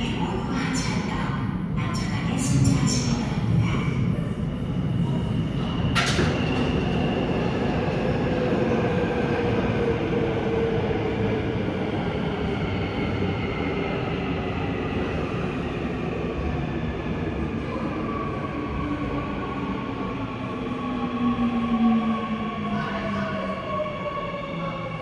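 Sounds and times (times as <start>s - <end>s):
train wheels rumbling on rail: 0.2s - 17.6s.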